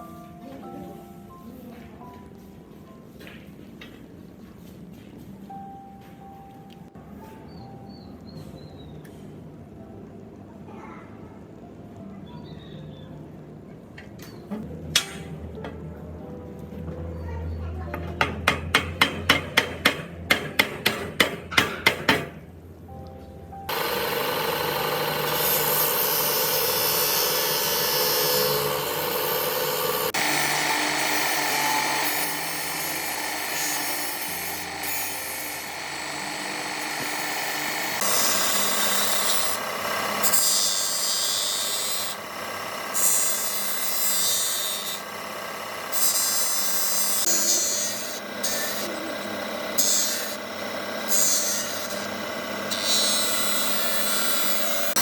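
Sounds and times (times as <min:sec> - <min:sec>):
hammer striking metal: 0:14.9 - 0:15.4, 0:18.0 - 0:22.4
power tool grinding: 0:23.7 - 0:55.0.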